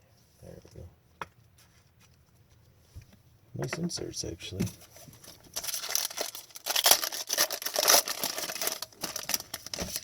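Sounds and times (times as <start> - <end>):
foil wrapper tearing and crinkling: 5.6 - 10.0.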